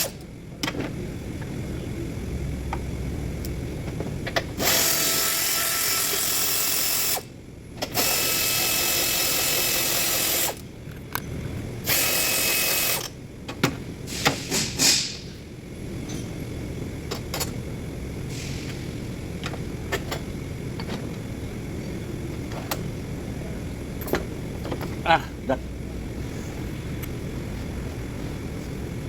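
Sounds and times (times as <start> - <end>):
power tool motor whine: 4.6 - 7.3, 7.9 - 10.6, 11.9 - 13.1.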